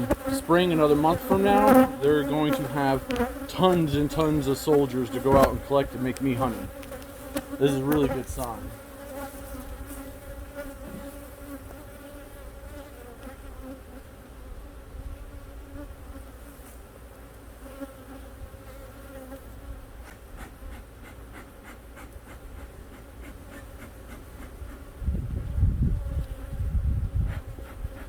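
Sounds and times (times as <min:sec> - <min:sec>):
bees buzzing: 0:00.0 - 0:13.9.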